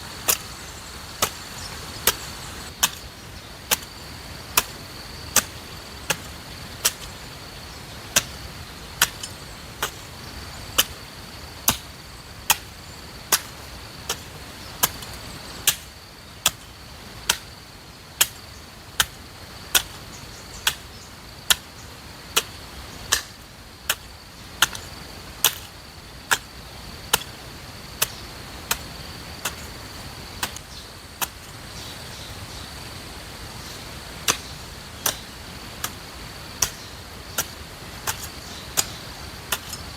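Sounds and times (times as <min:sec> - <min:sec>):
high insect drone: 0:00.0 - 0:39.9
hoe chopping into soil: 0:00.2 - 0:00.6, 0:01.2 - 0:03.1, 0:03.7 - 0:04.0, 0:04.6 - 0:07.2, 0:09.0 - 0:10.0, 0:11.6 - 0:12.7, 0:13.3 - 0:16.7, 0:19.0 - 0:20.0, 0:21.5 - 0:21.7, 0:22.4 - 0:25.7, 0:27.1 - 0:31.4, 0:34.2 - 0:36.0, 0:36.6 - 0:39.9.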